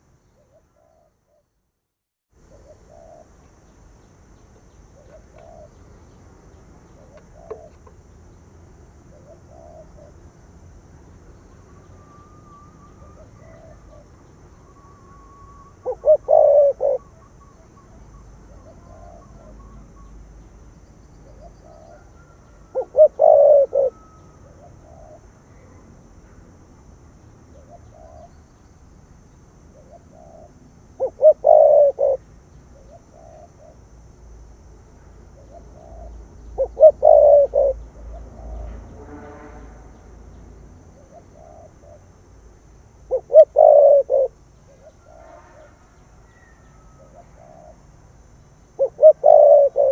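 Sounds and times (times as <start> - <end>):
dove cooing: 2.5 - 3.4, 5.0 - 5.8, 6.9 - 7.9, 9.1 - 10.2, 13.0 - 14.2, 15.1 - 17.6, 18.5 - 19.8, 21.3 - 25.8, 27.5 - 28.3, 29.8 - 32.2, 32.8 - 33.8, 35.4 - 38.2, 41.0 - 42.1, 43.0 - 45.7, 46.3 - 47.8, 48.8 - 49.9.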